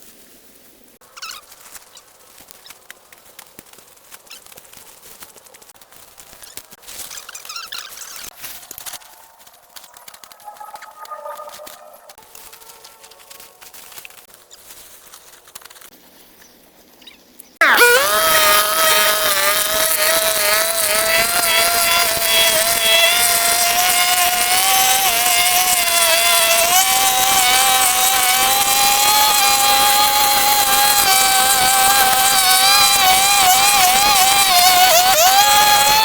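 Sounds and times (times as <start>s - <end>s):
high-speed motor whining: 8.4s - 14.0s, 17.6s - 36.0s.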